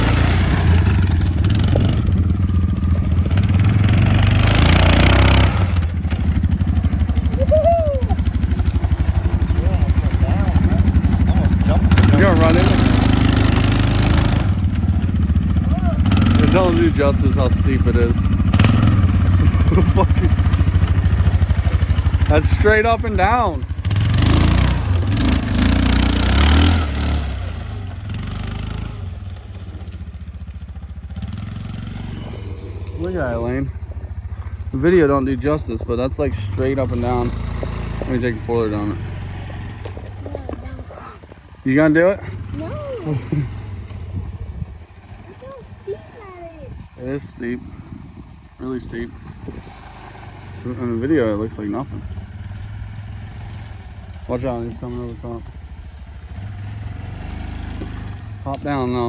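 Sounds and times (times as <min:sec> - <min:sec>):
quad engine revving and idling: 0:00.0 - 0:59.0
clattering and scraping: 0:36.3 - 0:41.5.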